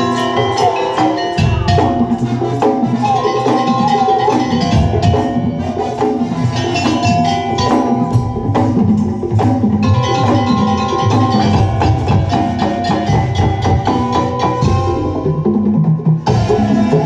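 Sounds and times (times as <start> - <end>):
held bending melody line: 0.0 - 15.7
percussion ensemble playing: 0.0 - 17.0.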